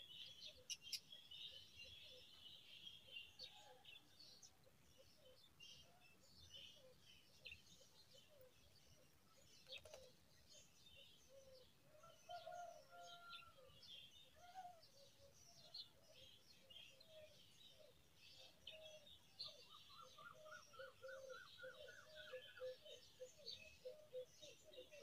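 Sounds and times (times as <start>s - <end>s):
small birds chirping faintly: 0.0s - 25.0s.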